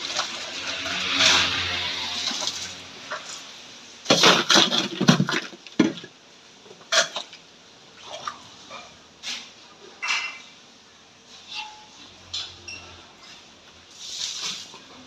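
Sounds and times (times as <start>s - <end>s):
hard objects clattering: 0.0s - 6.2s.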